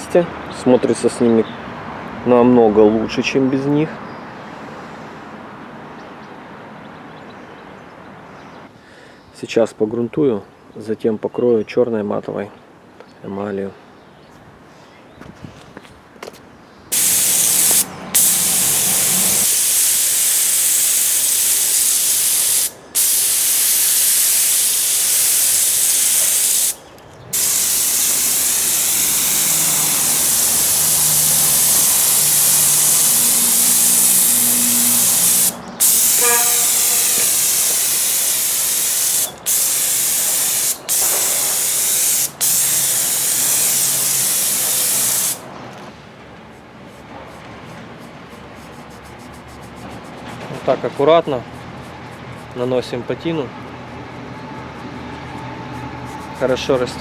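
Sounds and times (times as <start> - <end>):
paint spray hissing: 16.9 - 45.4.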